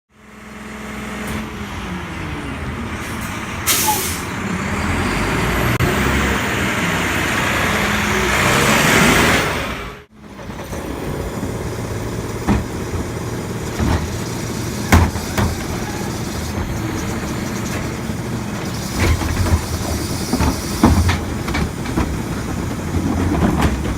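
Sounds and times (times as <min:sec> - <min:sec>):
garbage truck diesel engine: 0:00.1 - 0:23.9
air brake hiss: 0:03.0 - 0:04.3
knocks and clanks: 0:12.3 - 0:23.9.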